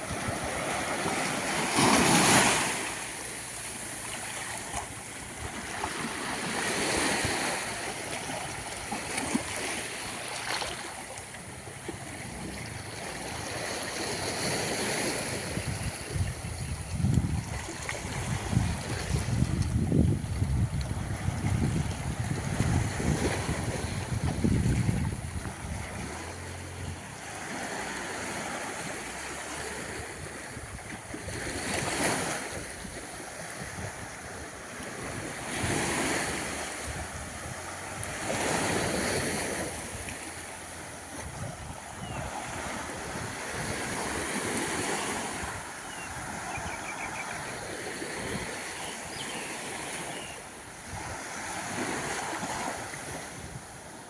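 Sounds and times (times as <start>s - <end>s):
small waves washing onto sand: 0.0s - 54.0s
wind rumble on microphone: 11.4s - 49.5s, 50.1s - 54.0s.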